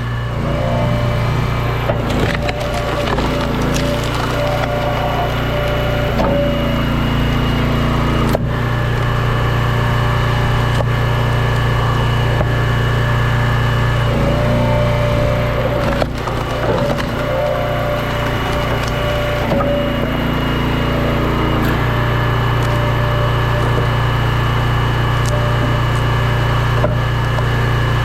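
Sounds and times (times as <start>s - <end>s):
log splitter engine running: 0.0s - 28.0s
wood splitting cracks: 1.5s - 7.2s, 14.0s - 27.6s.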